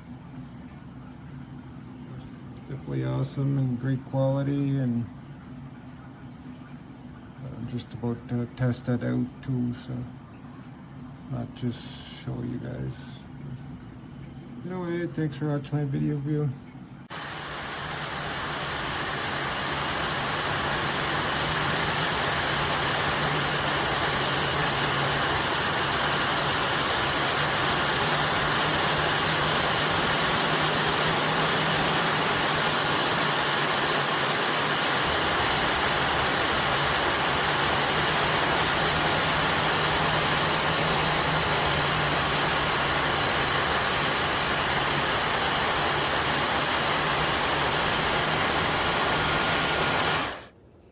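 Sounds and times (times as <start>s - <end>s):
faint low motor hum: 0.0s - 50.9s
hair dryer blowing air: 17.1s - 50.5s.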